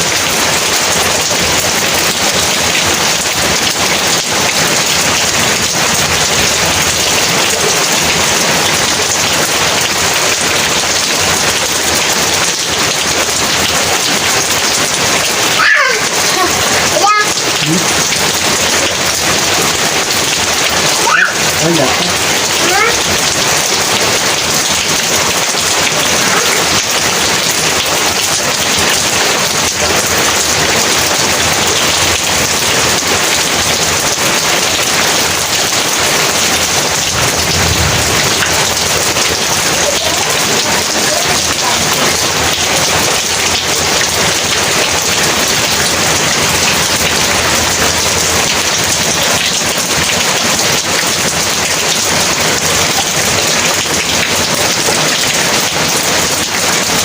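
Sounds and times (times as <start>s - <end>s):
heavy rain pouring: 0.0s - 57.0s
low thunder rumble: 36.5s - 39.7s.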